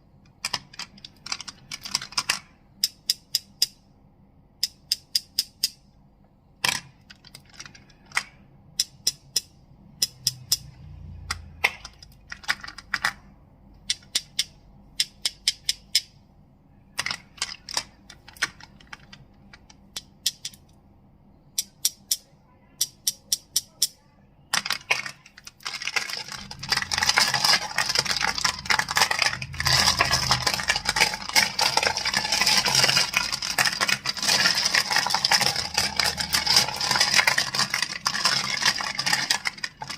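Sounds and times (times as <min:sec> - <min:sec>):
crystals clicking together: 0:07.2 - 0:13.0, 0:22.8 - 0:39.9.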